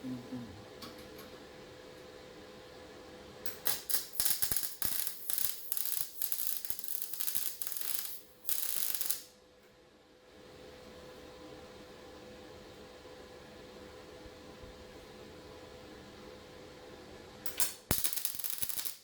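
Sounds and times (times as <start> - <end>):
welding arc crackling: 3.5 - 9.3, 17.5 - 19.0.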